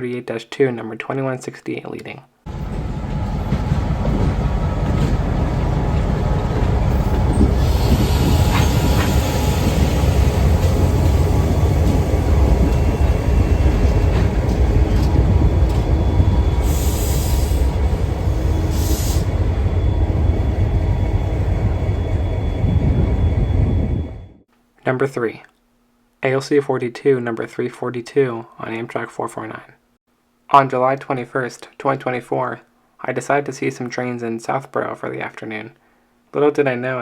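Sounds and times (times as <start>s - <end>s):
diesel locomotive engine rumbling: 2.5s - 24.4s
train rolling on track: 2.5s - 24.4s.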